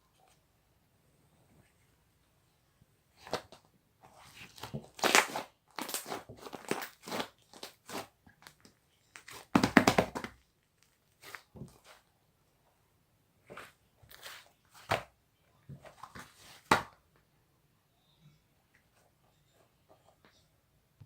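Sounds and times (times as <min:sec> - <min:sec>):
slime crackling and popping: 0:04.9 - 0:08.0.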